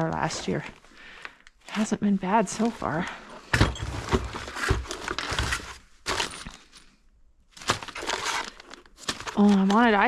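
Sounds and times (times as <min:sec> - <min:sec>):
hardware rattling as rummaged: 0:03.4 - 0:06.9.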